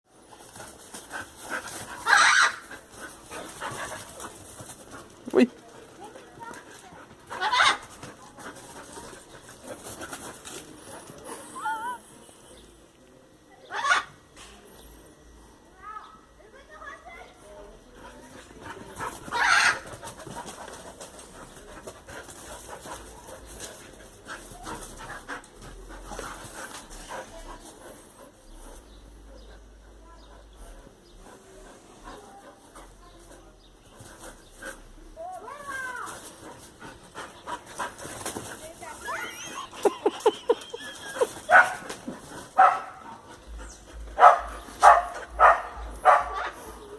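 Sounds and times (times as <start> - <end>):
dogs scuffling: 0.2 - 11.5, 18.0 - 28.9, 32.0 - 46.7
dog crying: 39.0 - 41.4
dogs barking: 39.2 - 46.7.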